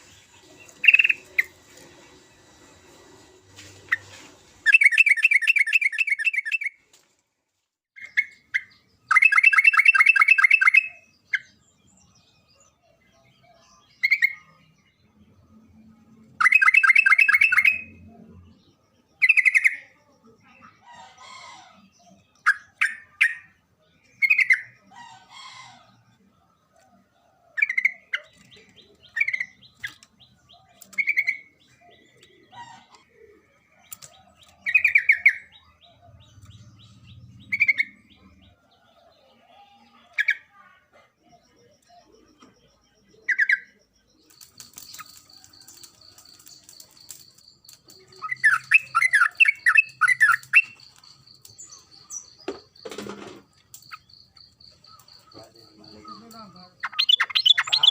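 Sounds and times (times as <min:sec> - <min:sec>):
bird singing chattering notes: 0:00.0 - 0:01.7, 0:04.7 - 0:06.8, 0:08.0 - 0:15.4, 0:16.2 - 0:39.2, 0:41.2 - 0:57.9.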